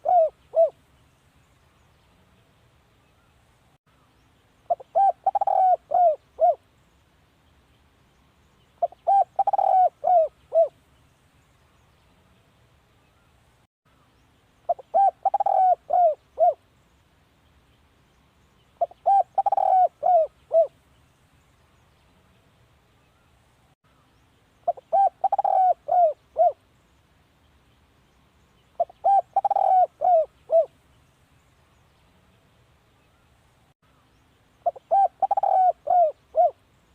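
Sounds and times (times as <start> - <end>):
dove cooing: 0.0 - 0.8, 4.7 - 6.6, 8.8 - 10.8, 14.7 - 16.6, 18.8 - 20.8, 24.7 - 26.6, 28.8 - 30.7, 34.6 - 36.6.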